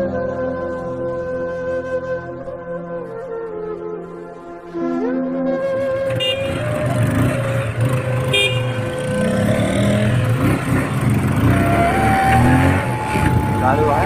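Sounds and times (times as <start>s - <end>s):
rumble of traffic engines: 5.8s - 14.0s
vehicle horns tooting: 6.0s - 14.0s.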